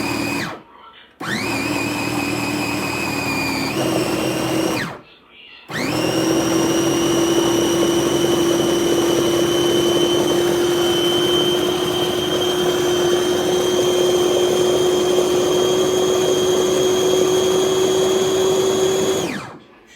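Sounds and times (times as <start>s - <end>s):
food processor motor whining: 0.0s - 0.6s, 1.2s - 5.0s, 5.7s - 19.6s.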